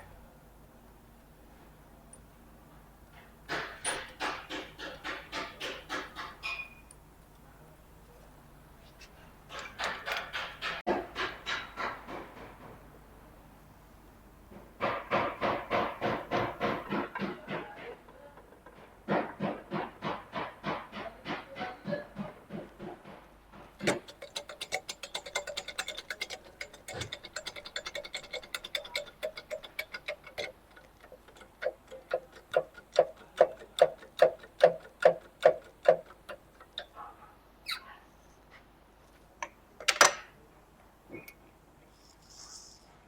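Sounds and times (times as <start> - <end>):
knocks: 3.5 - 6.7, 9.6 - 12.8, 14.5 - 17.8.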